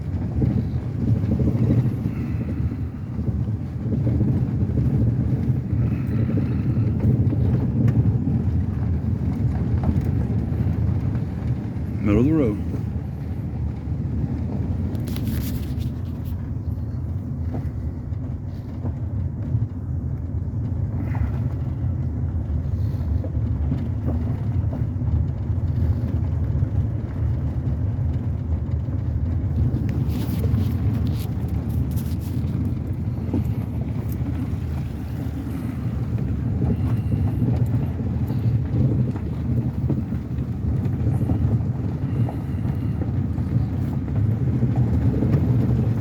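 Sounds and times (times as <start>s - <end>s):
truck engine and tyres rumbling: 0.0s - 46.0s.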